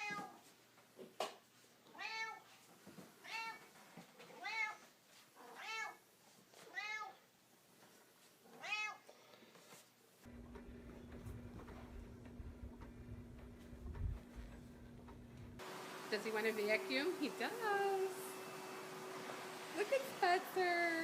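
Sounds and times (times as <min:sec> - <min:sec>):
cat meowing: 0:01.9 - 0:02.5, 0:03.2 - 0:03.6, 0:04.4 - 0:04.8, 0:05.4 - 0:06.0, 0:06.7 - 0:07.2, 0:08.5 - 0:09.1
steady low hum: 0:10.3 - 0:15.6.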